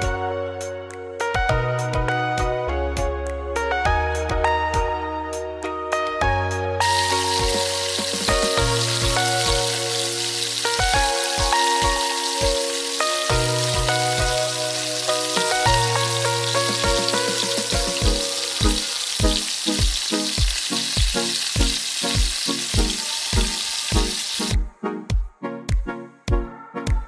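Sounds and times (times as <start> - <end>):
background music with beat: 0.0 - 27.0
onions sizzling in hot oil: 6.8 - 24.6.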